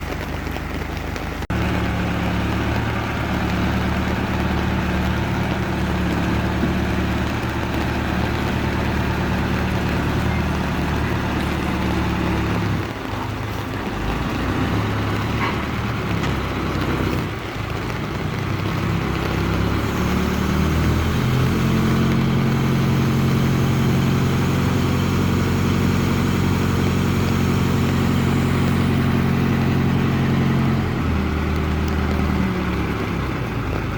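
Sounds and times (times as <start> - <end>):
heavy diesel engine running: 0.0 - 33.9.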